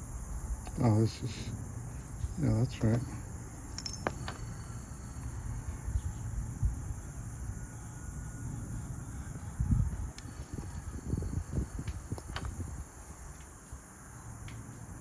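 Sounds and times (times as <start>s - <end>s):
low steady background noise: 0.0s - 15.0s
metallic clicks of lock wafers: 0.6s - 5.3s, 10.2s - 10.9s, 11.8s - 12.6s.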